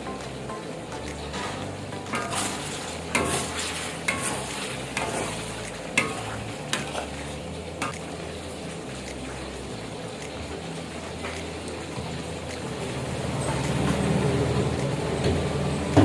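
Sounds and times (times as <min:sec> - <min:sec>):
food sizzling in a pan: 0:00.0 - 0:16.0
spatula scraping a pan: 0:01.3 - 0:07.9.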